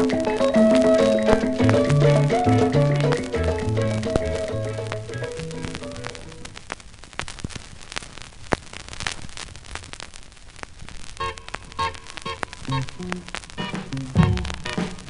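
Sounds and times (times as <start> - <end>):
song playing: 0.0 - 6.3, 11.2 - 15.0
vinyl clicks and pops: 0.0 - 15.0
vinyl record hiss: 0.0 - 15.0.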